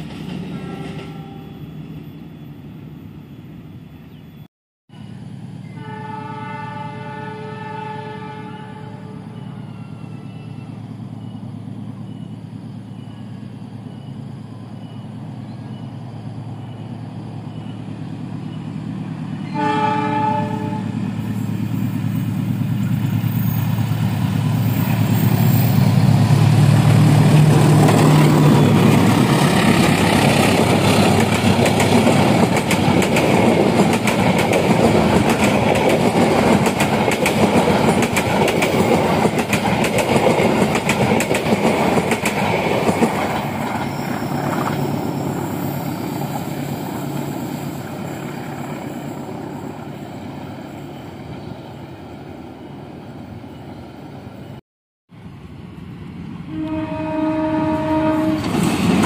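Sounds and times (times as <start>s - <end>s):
diesel locomotive engine: 0.0s - 59.0s
train horn: 0.5s - 1.7s, 5.6s - 10.4s, 19.4s - 21.2s, 56.5s - 58.9s
wheels clicking over rail joints: 27.3s - 44.9s.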